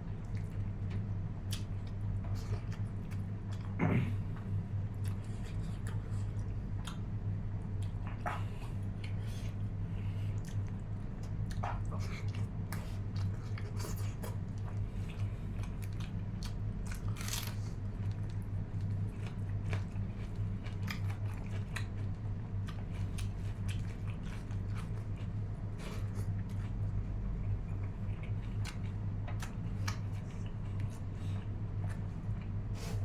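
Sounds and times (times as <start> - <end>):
person chewing: 10.4 - 26.9.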